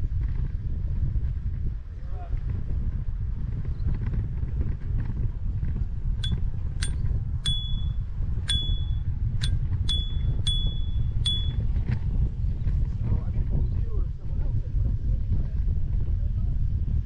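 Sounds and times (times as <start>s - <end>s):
wind and riding rumble: 0.0s - 17.0s
bicycle bell dinging: 6.2s - 11.8s.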